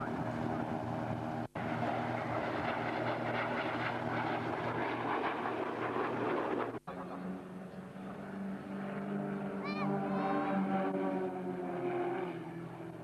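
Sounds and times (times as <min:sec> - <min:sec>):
aircraft engines humming: 0:00.0 - 0:13.0.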